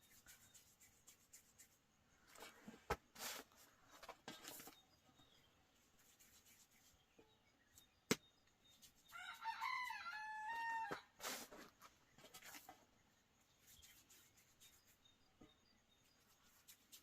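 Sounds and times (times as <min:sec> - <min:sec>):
rooster crowing: 0:09.1 - 0:11.1.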